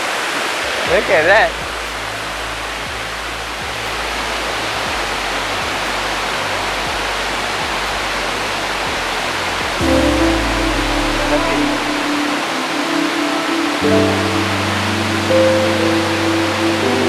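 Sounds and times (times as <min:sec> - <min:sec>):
waterfall rushing: 0:00.0 - 0:17.0
music: 0:00.8 - 0:17.0.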